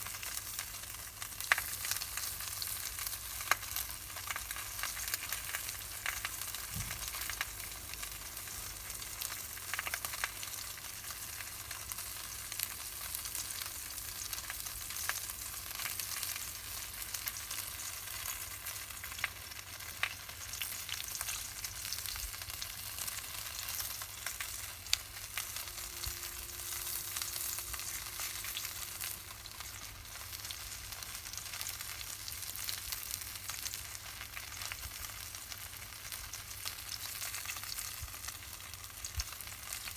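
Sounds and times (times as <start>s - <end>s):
meat sizzling: 0.0s - 39.9s
campfire crackling: 14.2s - 34.5s.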